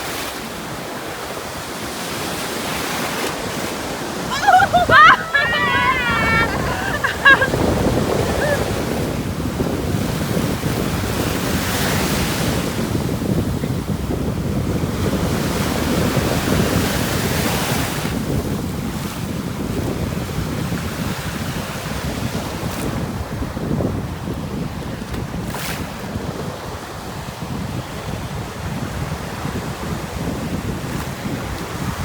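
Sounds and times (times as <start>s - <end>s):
ocean surf breaking: 0.0s - 13.1s
wind rumbling on microphone: 0.0s - 32.0s.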